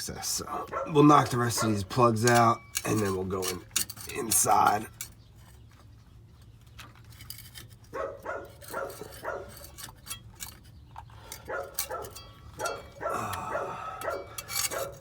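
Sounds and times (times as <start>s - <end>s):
dog barking: 0.6s - 1.8s, 7.9s - 9.6s, 11.5s - 15.0s.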